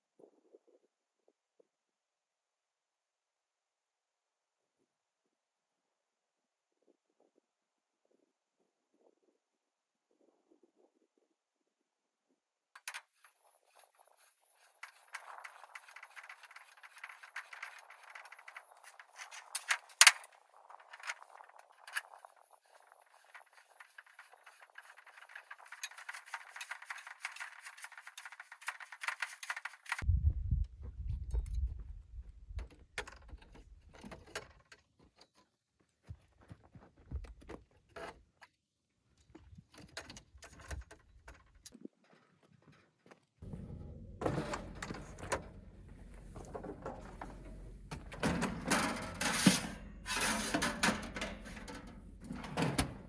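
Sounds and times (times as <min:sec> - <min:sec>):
clatter: 0:12.8 - 0:30.0
objects being handled: 0:12.8 - 0:30.0, 0:43.4 - 0:53.0
low rumble: 0:30.0 - 0:32.5.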